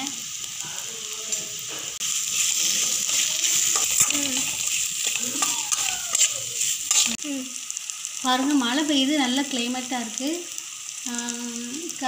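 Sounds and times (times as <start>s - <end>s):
eggplant sizzling in a pan: 0.0s - 12.0s
metal spatula scraping pan: 2.3s - 7.2s.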